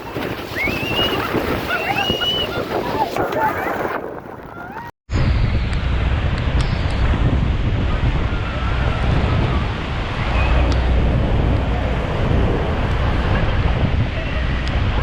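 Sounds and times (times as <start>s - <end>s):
wind buffeting microphone: 0.0s - 15.0s
waterfall roaring: 7.7s - 15.0s.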